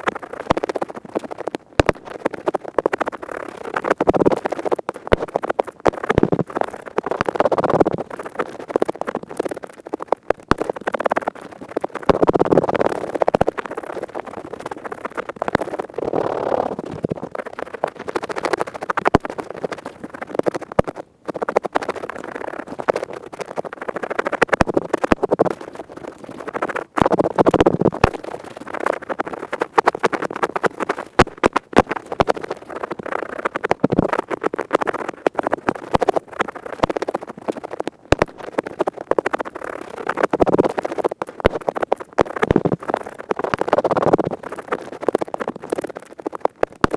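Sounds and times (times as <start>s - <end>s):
earpick scratching: 15.4s - 46.9s.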